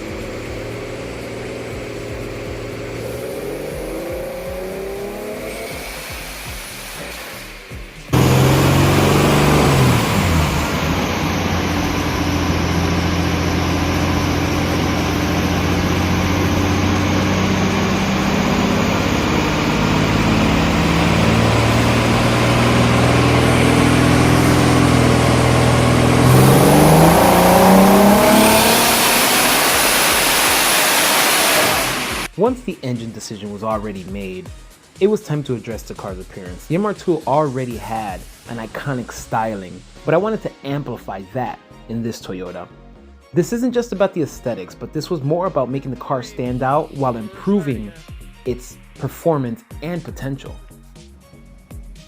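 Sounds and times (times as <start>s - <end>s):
car engine running: 0.0s - 32.4s.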